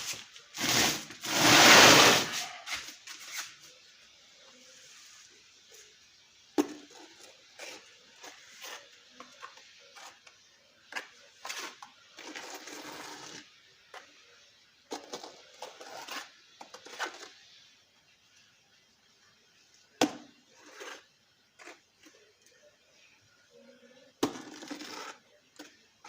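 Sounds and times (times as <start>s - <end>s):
scraping: 0.6s - 3.5s.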